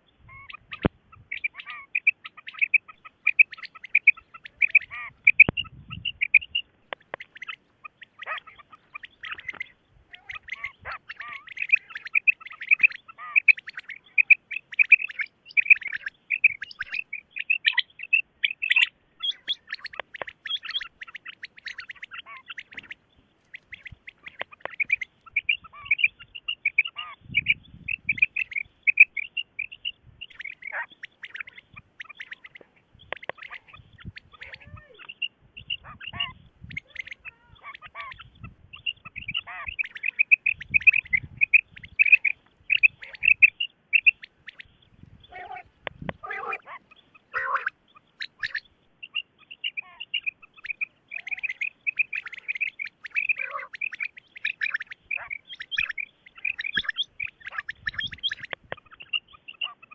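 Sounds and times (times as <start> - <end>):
quail chirping calls: 0.0 - 59.9.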